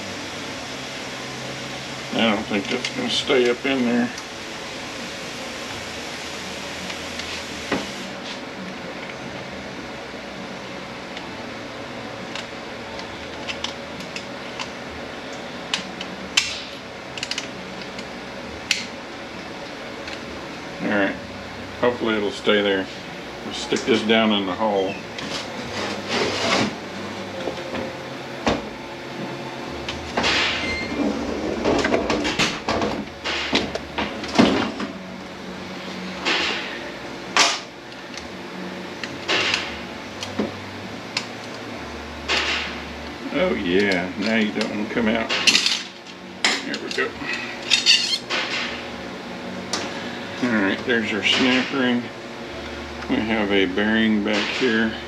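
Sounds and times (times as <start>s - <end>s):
fan hum: 0.0s - 55.0s
metal tools clicking: 46.7s - 48.3s.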